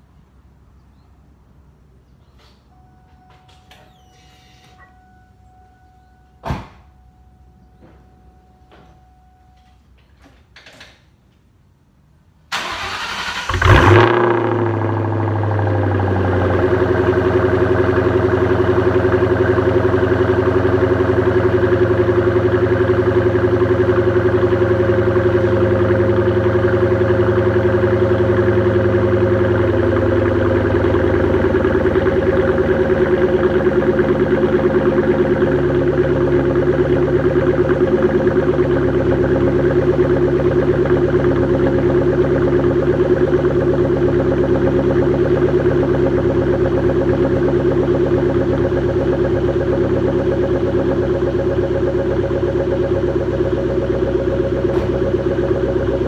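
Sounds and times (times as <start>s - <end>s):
car engine starting and idling: 0.0s - 56.0s.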